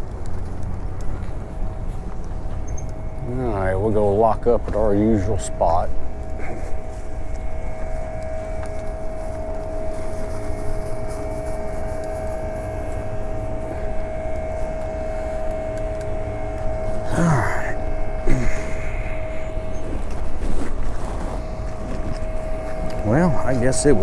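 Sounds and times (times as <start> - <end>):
wind and tyres rumbling: 0.0 - 17.1
hub motor whining: 0.0 - 24.0.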